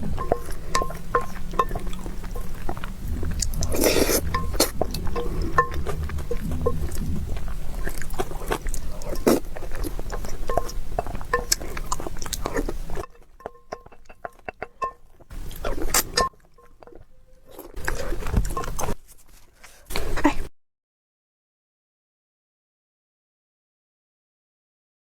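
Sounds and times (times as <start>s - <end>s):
chewing with wet mouth clicks: 0.0s - 19.0s.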